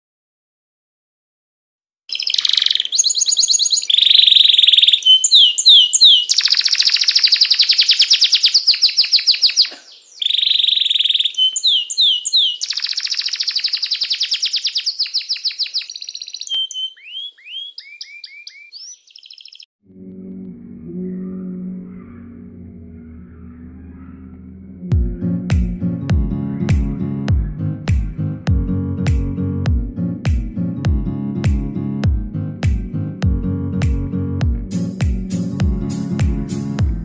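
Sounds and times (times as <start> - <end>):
songbird trills and chirps: 2.1 - 19.7.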